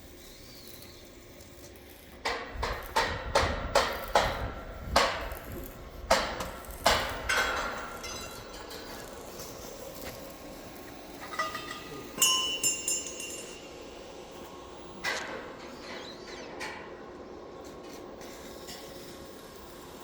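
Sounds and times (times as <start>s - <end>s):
sharp knocks on metal: 2.3s - 5.5s
metal clinks: 11.2s - 14.1s.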